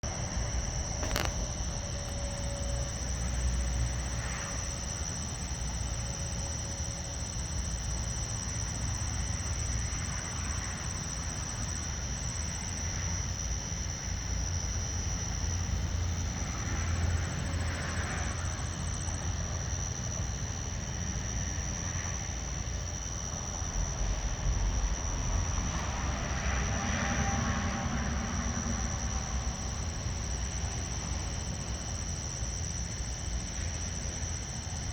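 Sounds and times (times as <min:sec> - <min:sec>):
night insects trilling: 0:00.1 - 0:34.9
low rumble: 0:23.5 - 0:27.4.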